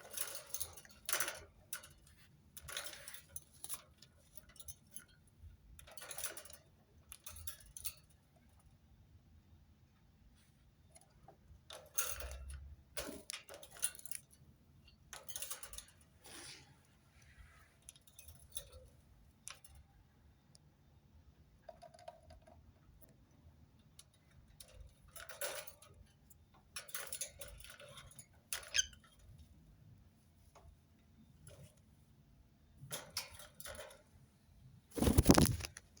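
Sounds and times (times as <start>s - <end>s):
parakeet beak clicks and scratches: 0.0s - 5.2s, 21.6s - 23.2s, 24.0s - 26.2s, 26.8s - 29.4s, 35.0s - 36.0s
parakeet squeak: 28.7s - 29.0s.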